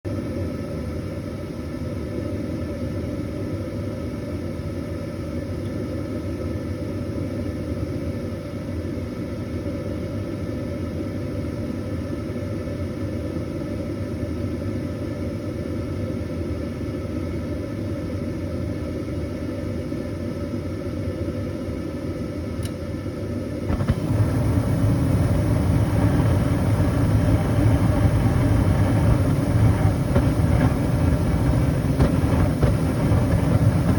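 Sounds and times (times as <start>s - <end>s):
gas furnace rumbling: 23.4s - 33.9s.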